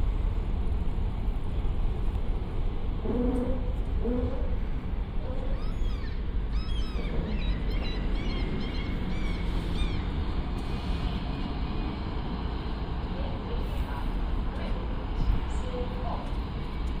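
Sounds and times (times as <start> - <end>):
city background rumble: 0.0 - 17.0.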